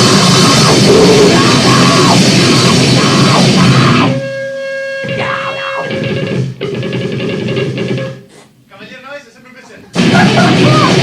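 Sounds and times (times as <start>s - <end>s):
distorted guitar and drums: 0.0s - 4.3s, 5.0s - 8.3s, 9.9s - 11.0s
held feedback tone: 0.7s - 2.2s.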